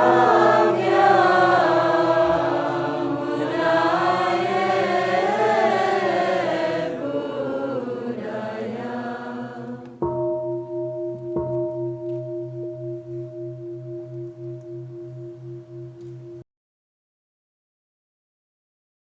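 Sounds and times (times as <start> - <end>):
deep bell ringing: 0.0 - 2.8, 10.0 - 16.4
voices chanting together: 0.0 - 10.0.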